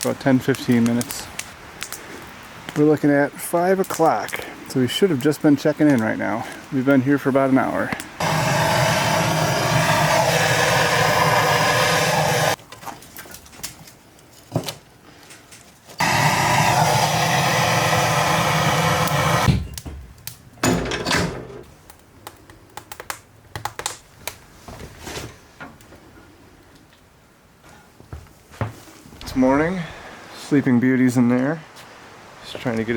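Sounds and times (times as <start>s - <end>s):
small motor running: 8.2s - 12.6s, 16.0s - 19.5s.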